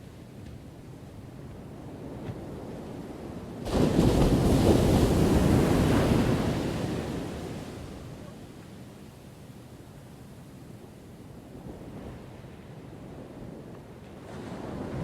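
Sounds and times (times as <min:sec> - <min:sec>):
ocean waves crashing: 0:03.6 - 0:08.0.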